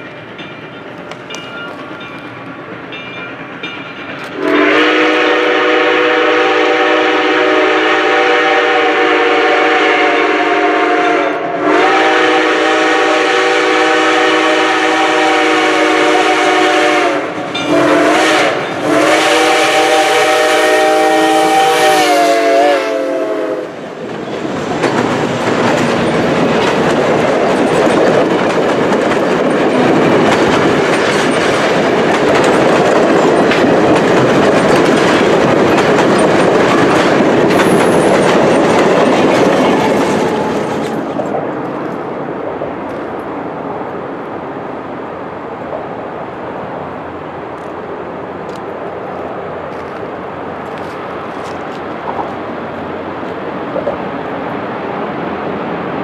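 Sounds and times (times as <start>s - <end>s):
steam locomotive whistle blasts: 4.4s - 23.8s
train wheels clattering over rails: 23.7s - 43.3s, 48.4s - 54.4s.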